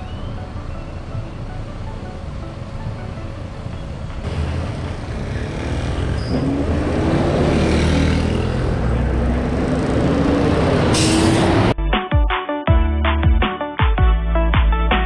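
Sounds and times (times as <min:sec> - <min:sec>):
vehicle engine accelerating: 0:03.1 - 0:11.8.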